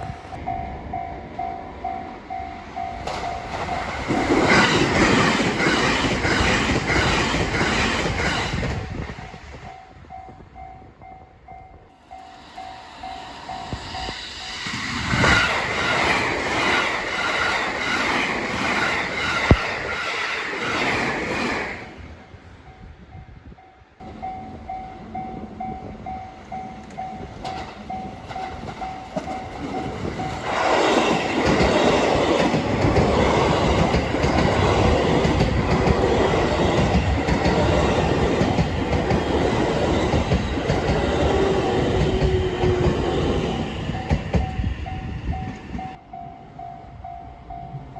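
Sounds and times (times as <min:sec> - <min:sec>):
train wheels clattering over rail joints: 0:03.0 - 0:09.2, 0:27.3 - 0:43.1.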